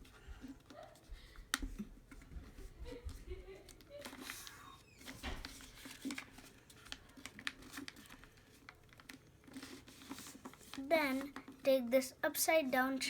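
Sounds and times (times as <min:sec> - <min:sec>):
paper being folded and creased: 0:03.7 - 0:11.7.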